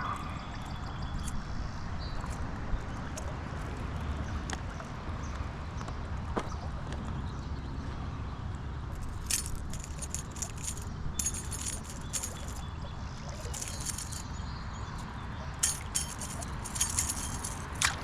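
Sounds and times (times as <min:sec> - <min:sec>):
metallic clinking and jingling: 0:09.0 - 0:18.0.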